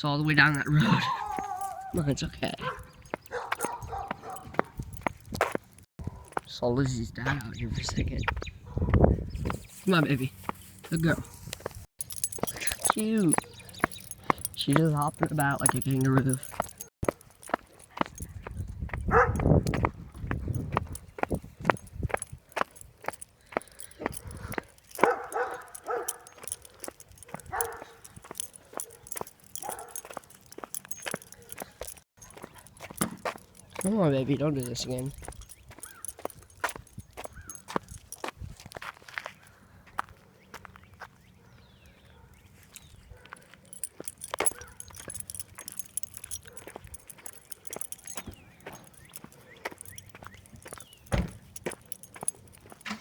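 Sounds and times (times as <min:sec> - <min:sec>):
light metallic jingling: 0:00.0 - 0:53.0
footsteps: 0:00.5 - 0:40.2, 0:43.2 - 0:53.0
dog barking: 0:01.0 - 0:04.8, 0:06.0 - 0:06.4, 0:08.6 - 0:09.0, 0:19.0 - 0:19.6, 0:24.1 - 0:30.3, 0:31.2 - 0:32.8, 0:41.4 - 0:42.4, 0:43.0 - 0:43.8, 0:44.4 - 0:45.2, 0:46.3 - 0:47.0.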